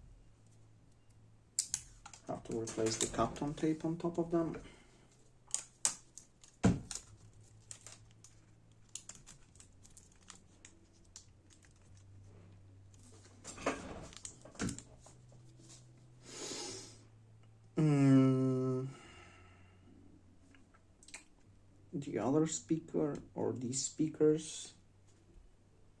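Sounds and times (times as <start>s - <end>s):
tape being peeled: 1.6s - 3.2s, 5.4s - 12.2s.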